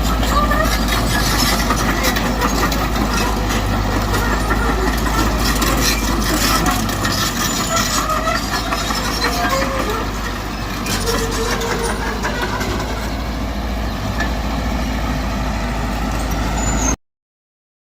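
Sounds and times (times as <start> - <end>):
heavy machinery diesel engine: 0.0 - 17.0
faint squeaks: 0.2 - 13.2.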